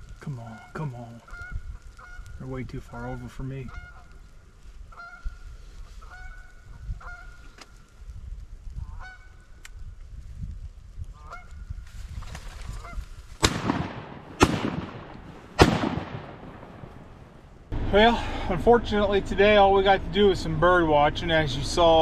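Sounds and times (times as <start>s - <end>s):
geese honking: 3.6s - 4.2s, 4.9s - 7.4s, 8.9s - 9.4s
shotgun shots: 13.4s - 17.5s.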